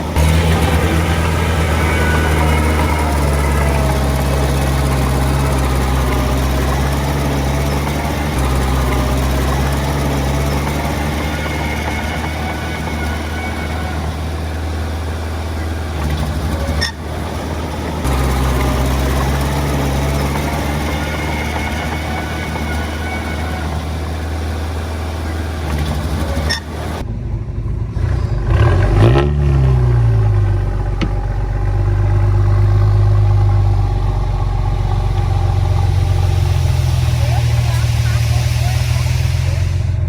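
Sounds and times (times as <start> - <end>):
heavy diesel engine running: 0.0 - 40.0.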